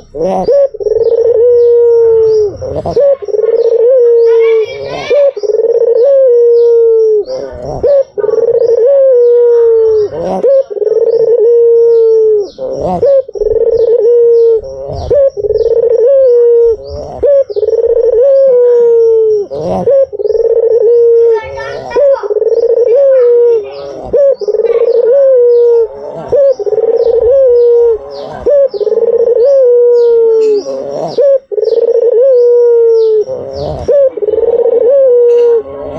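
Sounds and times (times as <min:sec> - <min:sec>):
dove cooing: 0:00.0 - 0:35.9.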